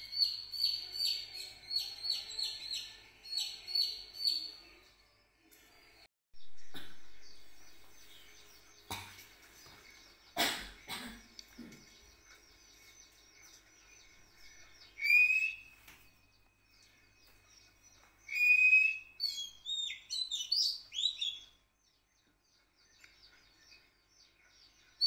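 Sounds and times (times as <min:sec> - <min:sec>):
faint background chirping: 0:00.0 - 0:25.0
warbling bird chirps: 0:14.1 - 0:15.7
songbird whistled notes: 0:14.9 - 0:15.7, 0:18.3 - 0:21.5.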